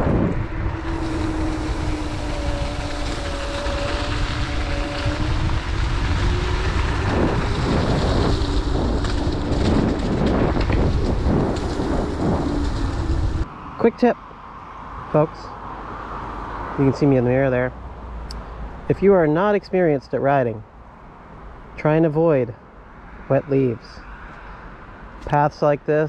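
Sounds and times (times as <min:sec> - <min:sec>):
electric motor whine: 0:00.0 - 0:13.5
wind buffeting microphone: 0:00.0 - 0:14.2.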